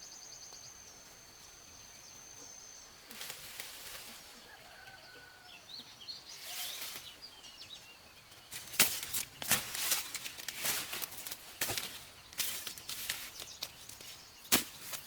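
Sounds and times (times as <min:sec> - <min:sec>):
small bird chirps: 0:04.2 - 0:09.9
sugarcane being chopped: 0:08.5 - 0:15.0.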